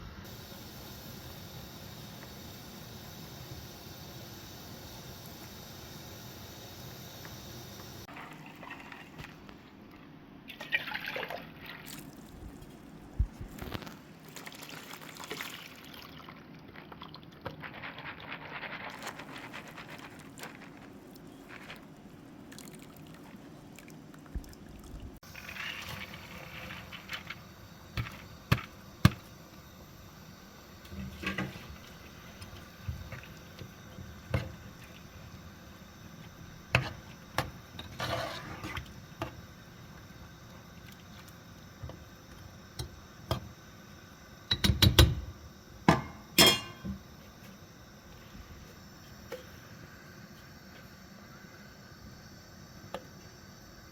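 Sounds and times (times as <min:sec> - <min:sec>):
water pouring and trickling: 0:10.6 - 0:13.0, 0:13.6 - 0:27.6.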